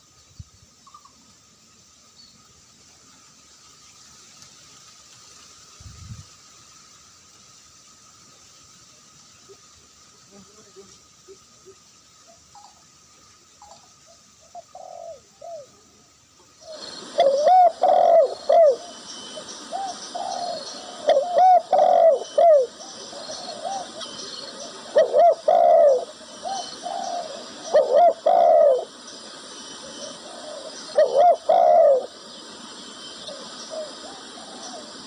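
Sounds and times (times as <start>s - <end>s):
dove cooing: 14.4s - 15.8s, 16.6s - 32.4s, 33.1s - 35.0s.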